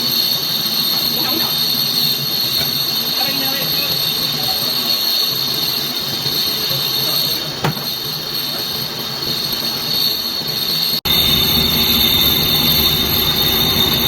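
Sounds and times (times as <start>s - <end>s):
metal lathe whining: 11.1s - 14.0s.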